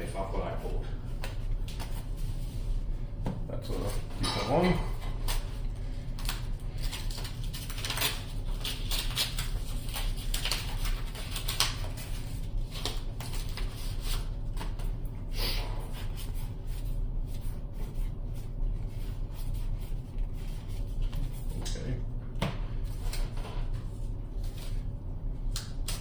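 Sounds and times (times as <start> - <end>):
steady low hum: 0.0 - 26.0
cards clicking and rustling: 6.2 - 14.8.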